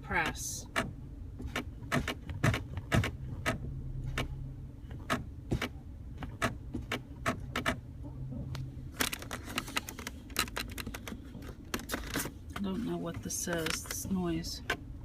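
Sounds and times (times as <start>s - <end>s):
low steady hum: 0.0s - 15.0s
sharp clicking from car console: 0.7s - 7.8s.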